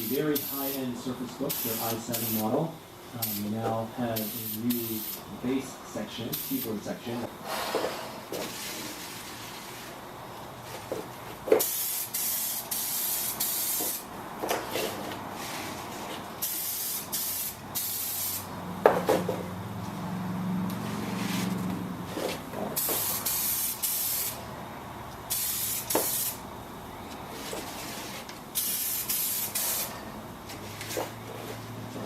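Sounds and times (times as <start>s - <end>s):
spray paint hissing: 0.0s - 0.9s, 1.5s - 2.5s, 4.2s - 5.2s, 11.6s - 14.1s, 16.4s - 18.5s, 22.8s - 24.4s, 25.3s - 26.4s, 27.8s - 30.0s.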